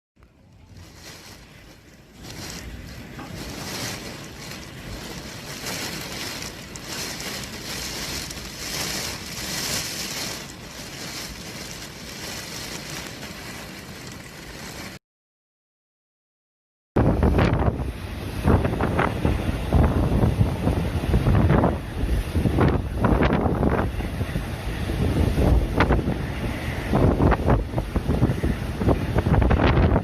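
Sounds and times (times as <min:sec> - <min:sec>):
waves sloshing: 0:00.5 - 0:15.0
wind-driven water hissing: 0:00.7 - 0:14.7, 0:17.1 - 0:30.0.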